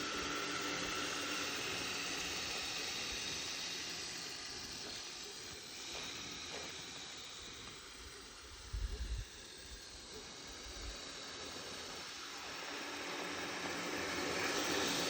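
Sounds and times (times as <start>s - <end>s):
faint motor whine: 0.0s - 15.0s
toy tracked vehicle hissing: 0.0s - 15.0s.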